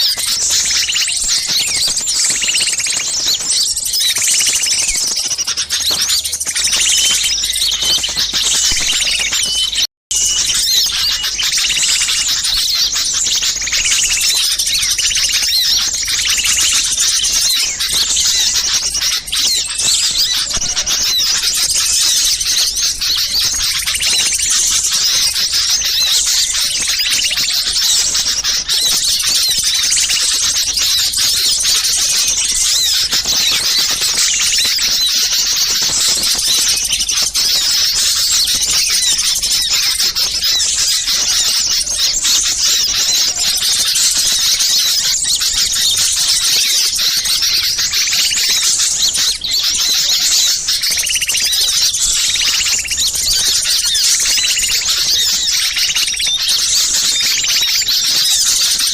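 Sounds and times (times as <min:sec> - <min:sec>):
songbirds chattering and chirping: 0:00.0 - 0:58.9.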